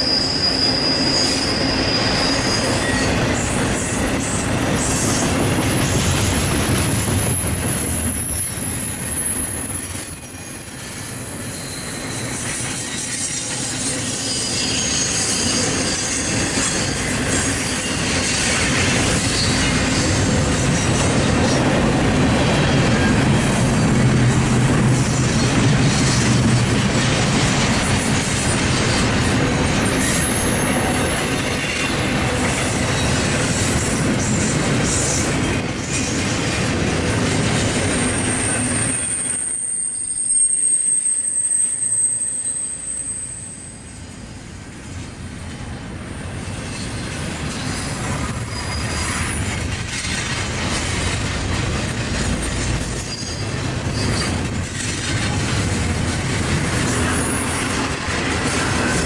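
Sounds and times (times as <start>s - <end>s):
high wheel squeal: 0.0s - 4.0s, 4.8s - 21.1s, 28.1s - 32.1s, 37.9s - 44.0s, 46.7s - 49.4s, 52.4s - 54.5s
freight train rumbling past: 0.0s - 59.0s.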